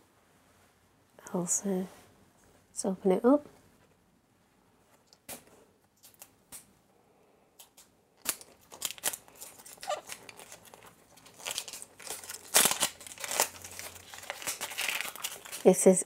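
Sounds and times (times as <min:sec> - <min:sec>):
wrapper crinkling and tearing: 0:07.6 - 0:16.0.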